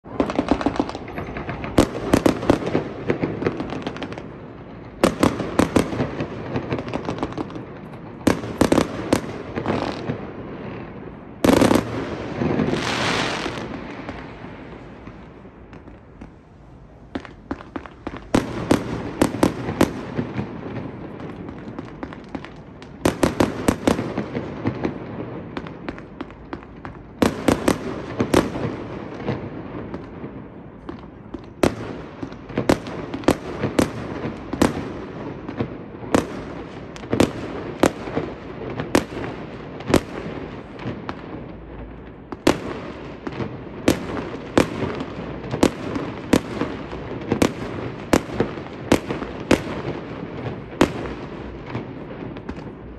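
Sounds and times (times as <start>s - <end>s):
fireworks bursting bangs: 0.0s - 52.9s
continuous noisy background: 0.1s - 5.0s.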